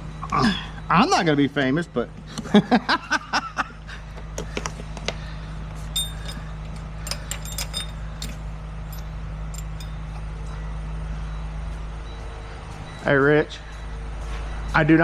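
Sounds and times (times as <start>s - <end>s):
light metallic clinks and jingles: 5.9s - 10.2s.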